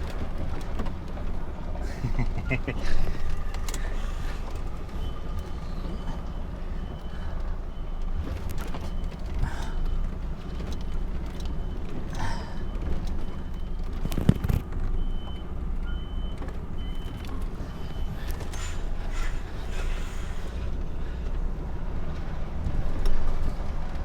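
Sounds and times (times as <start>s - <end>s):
lorry diesel engine running: 0.0s - 24.0s
reversing alarm beeping: 3.1s - 14.3s, 15.0s - 21.1s.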